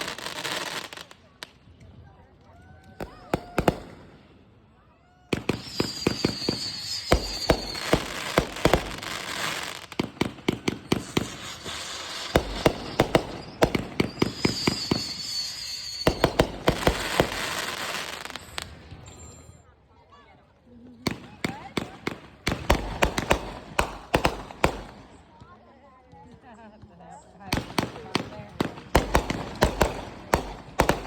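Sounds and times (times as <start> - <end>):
fireworks cracking and banging: 0.0 - 1.9, 2.8 - 4.4, 5.2 - 19.5, 21.1 - 26.4, 27.5 - 31.0
high wavering firework whistle: 5.3 - 9.8, 10.7 - 19.7.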